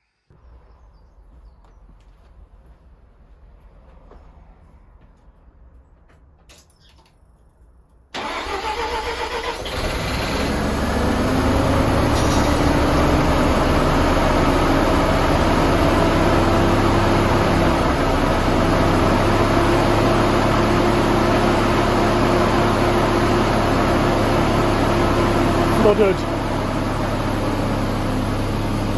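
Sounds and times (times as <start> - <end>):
engine cranking: 8.2 - 12.4
engine idling: 8.2 - 28.9.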